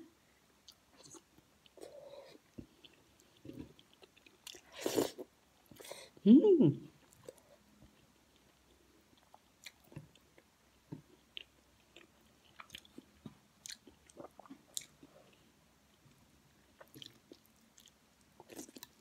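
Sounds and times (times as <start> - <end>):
faint chewing: 0.6 - 5.9, 7.0 - 16.1, 16.7 - 19.0.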